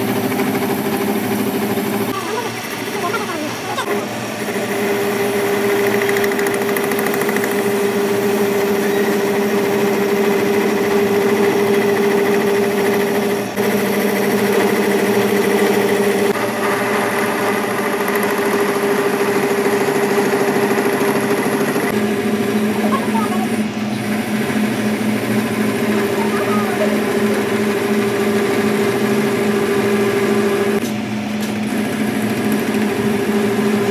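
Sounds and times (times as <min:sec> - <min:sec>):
workshop machine humming and whining: 0:00.0 - 0:33.9.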